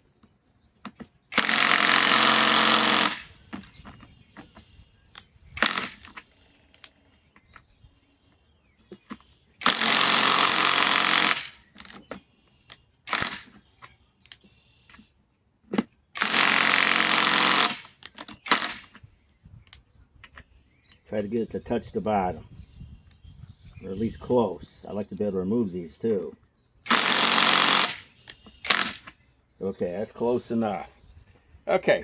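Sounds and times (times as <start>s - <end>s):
impact wrench running: 1.3s - 3.7s, 5.6s - 6.2s, 9.6s - 12.0s, 13.1s - 13.5s, 16.2s - 18.9s, 26.9s - 29.1s.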